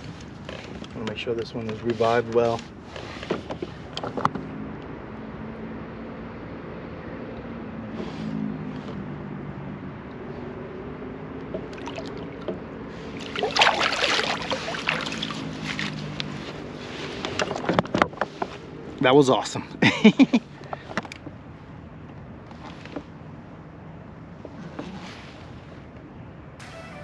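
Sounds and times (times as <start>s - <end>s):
water lapping beside kayak: 11.6s - 16.1s
fish splashing: 11.7s - 12.4s, 13.0s - 15.6s.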